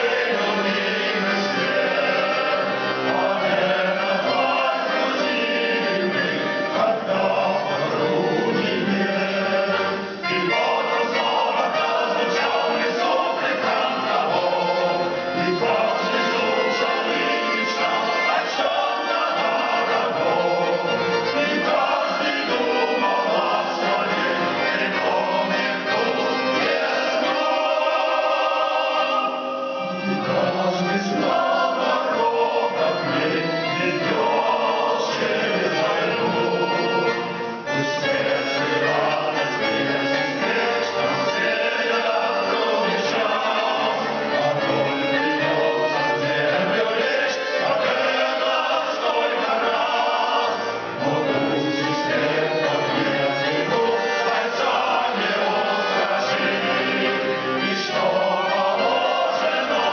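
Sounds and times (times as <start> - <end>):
male ensemble singing in harmony: 0.0 - 59.9.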